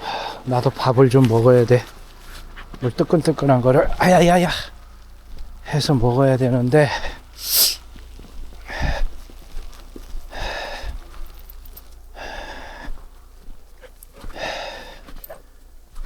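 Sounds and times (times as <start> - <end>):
man breathing hard: 7.0 - 7.8, 8.6 - 9.2, 10.3 - 11.3, 12.1 - 13.3, 14.2 - 15.2.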